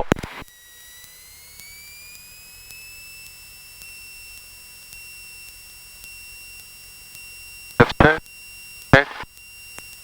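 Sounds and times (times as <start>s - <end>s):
high electrical whine: 7.8s - 8.2s.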